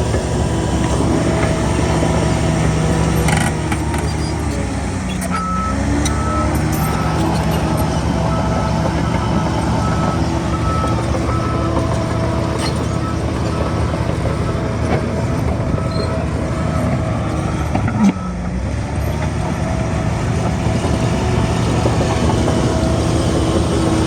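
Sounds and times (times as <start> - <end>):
diesel engine running: 0.0 - 24.0
reversing alarm beeping: 5.3 - 19.2.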